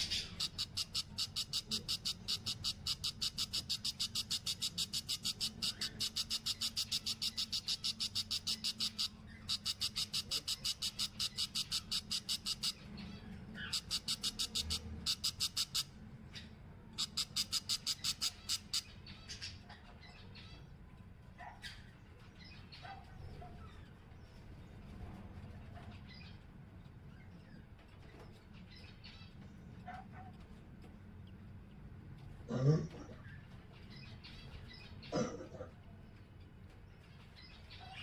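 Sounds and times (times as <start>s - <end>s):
baby bird raspy peeps: 0.0s - 20.6s
bird chirps: 0.0s - 20.8s.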